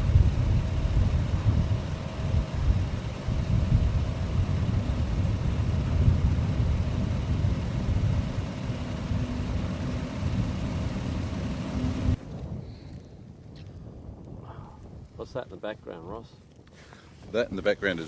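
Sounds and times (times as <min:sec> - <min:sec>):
motorcycle engine running: 0:00.0 - 0:13.0
wind rumble on microphone: 0:00.0 - 0:18.0.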